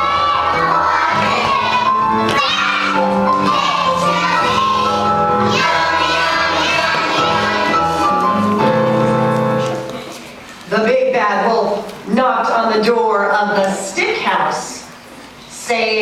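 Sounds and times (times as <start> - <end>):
children singing: 0.0 - 8.4
held instrumental notes: 0.0 - 10.3.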